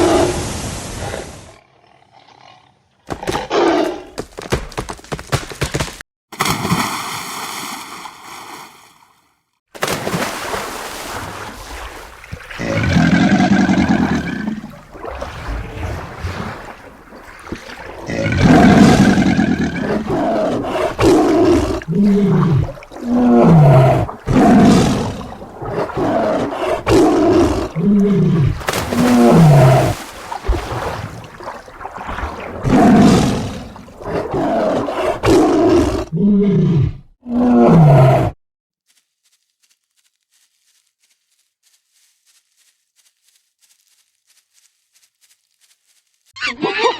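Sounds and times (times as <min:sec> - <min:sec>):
tiger roaring and growling: 0:12.5 - 0:16.6, 0:17.6 - 0:30.0, 0:32.1 - 0:38.4.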